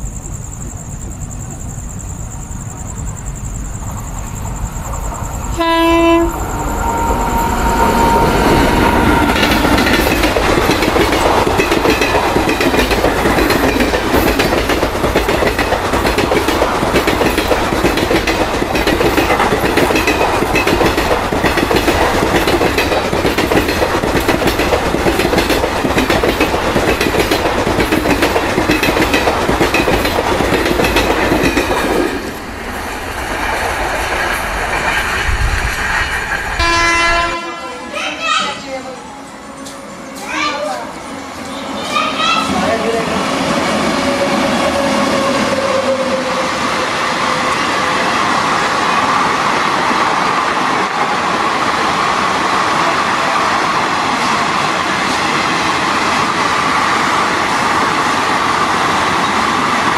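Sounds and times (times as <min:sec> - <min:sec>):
high steady insect tone: 0:00.0 - 0:36.5
insects chirping: 0:00.0 - 0:45.5
low rumble of approaching train: 0:00.0 - 0:59.9
train horn blast: 0:05.5 - 0:06.4, 0:36.6 - 0:38.1
wheels clattering over rail joints: 0:09.2 - 0:36.6.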